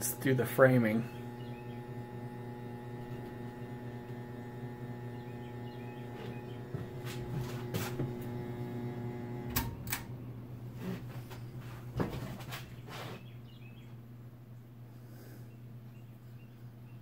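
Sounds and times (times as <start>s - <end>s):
ceiling fan buzzing: 0.0s - 17.0s.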